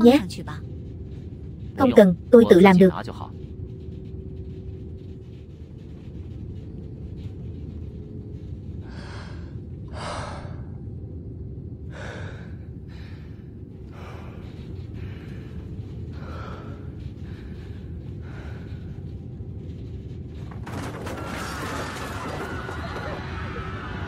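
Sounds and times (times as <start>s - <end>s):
airliner cabin drone: 0.0s - 24.0s
man breathing hard: 11.9s - 19.0s.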